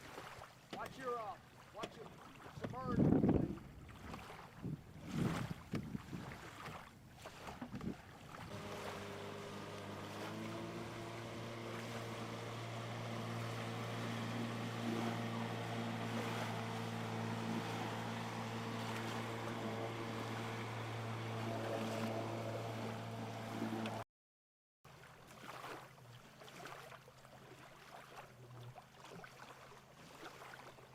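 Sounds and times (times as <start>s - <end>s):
outboard motor running: 0.0s - 24.0s
water noise: 0.0s - 24.0s, 24.9s - 30.9s
wind: 0.0s - 24.0s, 24.9s - 30.9s.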